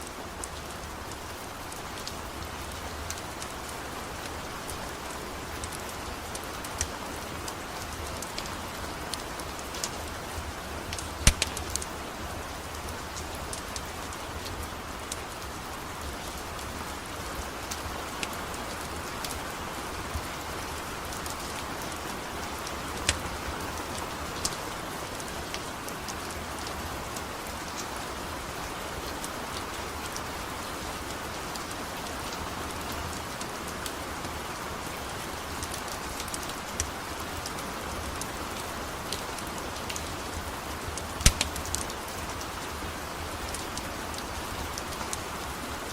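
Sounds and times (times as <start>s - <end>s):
steady rain falling: 0.0s - 45.9s
sharp pops and crackles: 10.9s - 11.9s, 22.6s - 23.4s, 41.0s - 42.4s.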